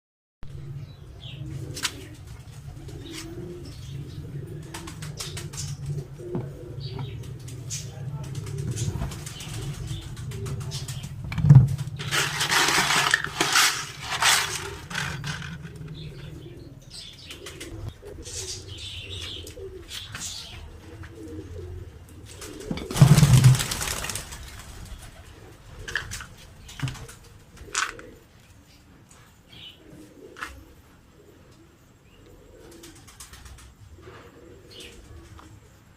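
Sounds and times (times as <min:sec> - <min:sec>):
pigeons cooing: 0:00.5 - 0:35.9
wings flapping: 0:04.6 - 0:06.2, 0:07.0 - 0:15.9, 0:22.2 - 0:25.2, 0:32.7 - 0:33.8.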